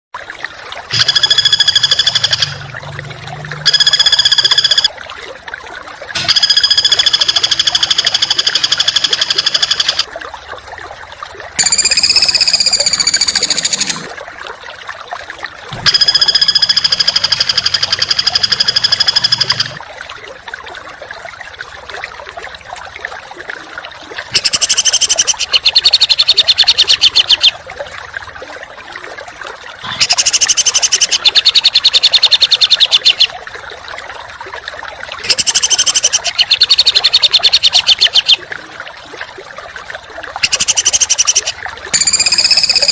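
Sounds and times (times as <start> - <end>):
songbird chattering trills: 24.4 - 27.5, 29.9 - 33.3, 35.2 - 38.4, 40.4 - 42.9.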